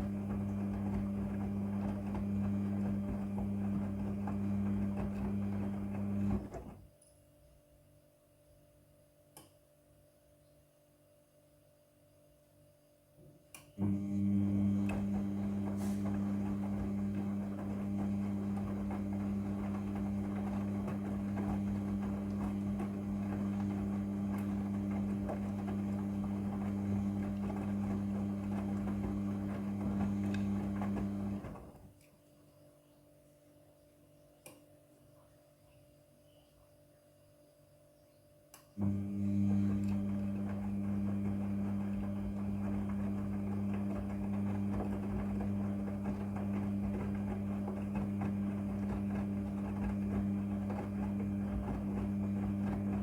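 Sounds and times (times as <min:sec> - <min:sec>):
washing machine humming: 0:00.0 - 0:06.9, 0:13.7 - 0:32.0, 0:38.8 - 0:53.0
click: 0:09.3 - 0:09.6, 0:13.5 - 0:13.8, 0:34.4 - 0:34.6, 0:38.5 - 0:38.8.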